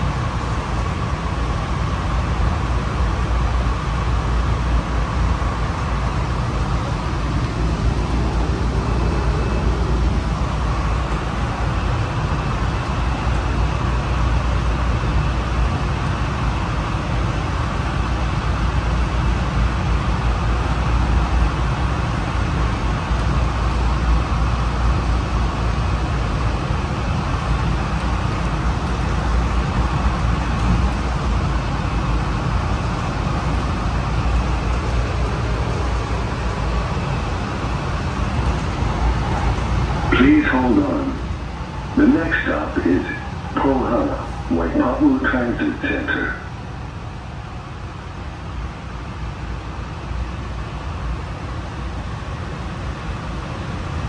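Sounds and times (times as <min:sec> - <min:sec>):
train wheels rumbling: 0:00.0 - 0:54.0
faint high whine: 0:38.5 - 0:50.6.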